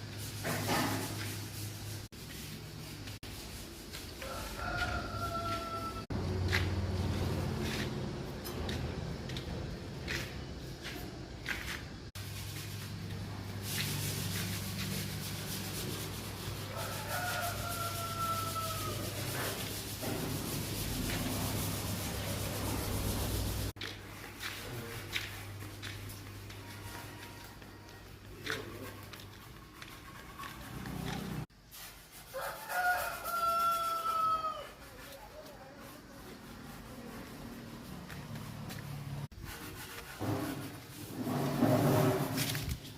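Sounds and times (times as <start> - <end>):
rooster crowing: 4.1 - 6.6, 16.6 - 19.7, 26.6 - 28.1, 32.3 - 34.8.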